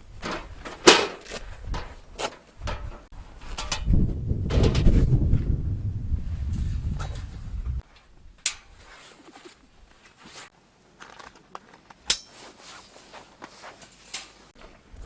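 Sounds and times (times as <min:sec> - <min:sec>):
rustling and crunching steps: 0:00.0 - 0:03.7, 0:06.7 - 0:15.0.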